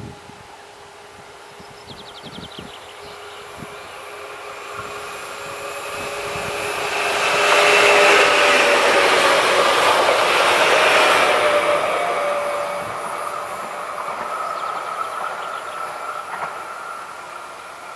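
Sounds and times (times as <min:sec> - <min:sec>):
train wheels rushing on rails: 0:00.0 - 0:17.9
train whining tones: 0:00.0 - 0:17.9.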